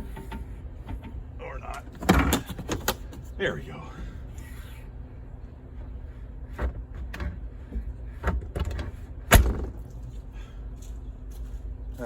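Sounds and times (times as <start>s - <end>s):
loud thud: 9.3s - 9.8s.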